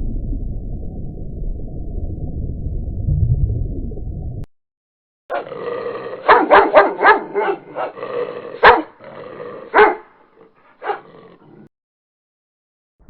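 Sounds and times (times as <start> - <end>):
dog barking: 5.3 - 5.6, 6.2 - 9.0, 9.6 - 11.6.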